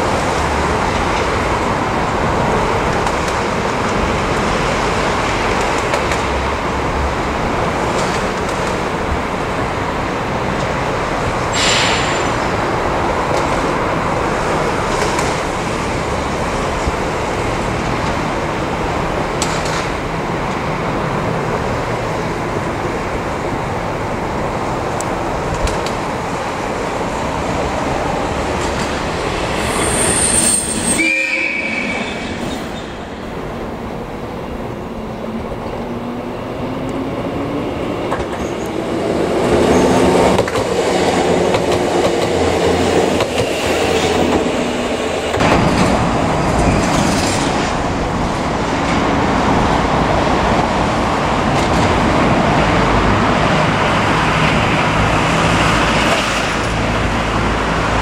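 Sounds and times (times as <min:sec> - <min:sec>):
electric train running on rails: 0:00.0 - 0:58.0
wheel squeal: 0:29.5 - 0:33.0.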